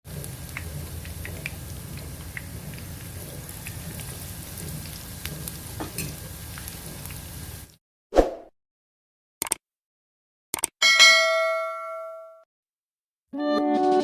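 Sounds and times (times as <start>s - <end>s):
food deep-frying in hot oil: 0.1s - 7.8s.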